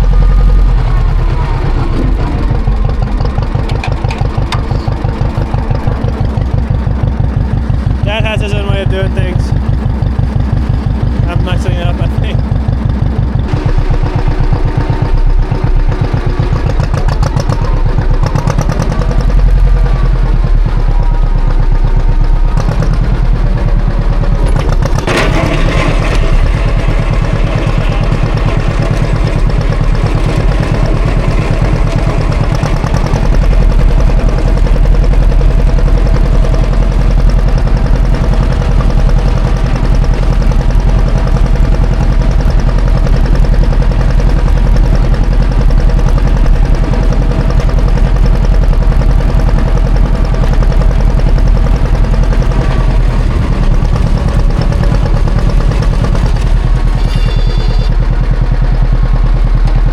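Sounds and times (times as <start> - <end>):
tractor engine running: 0.0 - 59.9
sharp metal clank: 57.0 - 57.9.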